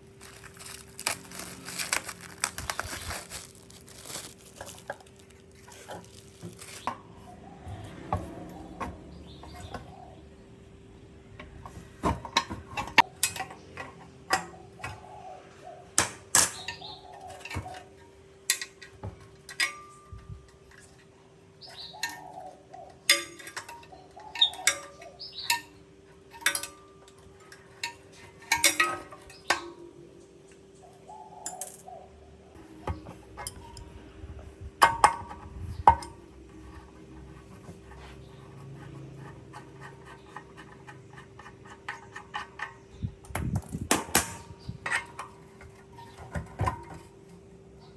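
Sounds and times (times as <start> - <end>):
metal parts clinking: 0.2 - 7.0, 23.1 - 29.6.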